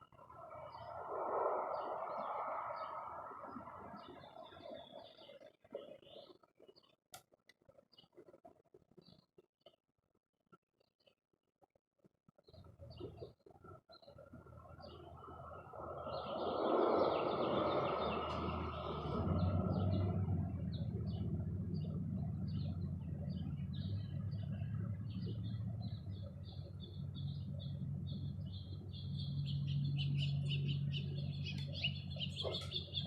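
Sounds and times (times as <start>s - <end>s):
small birds chirping: 0.0s - 7.0s, 12.4s - 33.0s
rushing noise: 0.4s - 4.0s, 15.3s - 20.5s
low steady hum: 14.2s - 33.0s.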